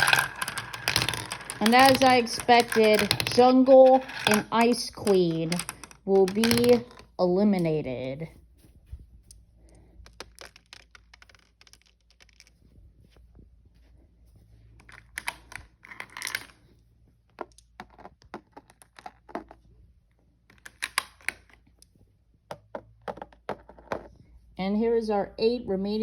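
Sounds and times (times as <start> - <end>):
marbles clattering on track: 0.0 - 7.7, 10.0 - 12.5, 14.8 - 16.6.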